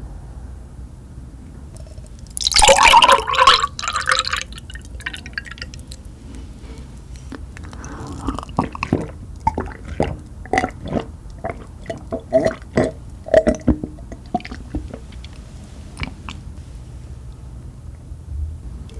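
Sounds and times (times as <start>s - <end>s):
wet chewing: 1.8s - 16.5s.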